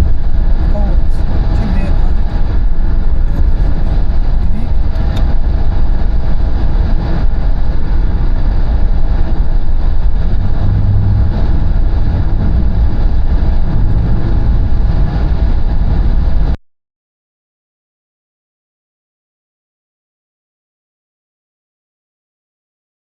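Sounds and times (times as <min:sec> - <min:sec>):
car driving at speed: 0:00.0 - 0:16.6.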